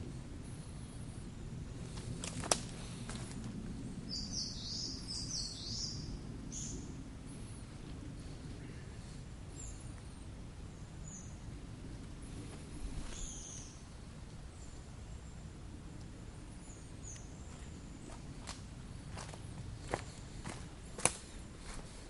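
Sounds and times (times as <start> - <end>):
low outdoor rumble: 0.0 - 22.0
small birds high chirps: 3.9 - 7.6, 13.0 - 13.9, 16.4 - 18.4.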